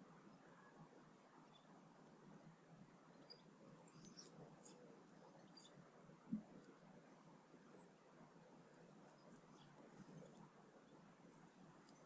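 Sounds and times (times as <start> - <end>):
faint high bird chirps: 0.3 - 1.8, 3.0 - 6.5.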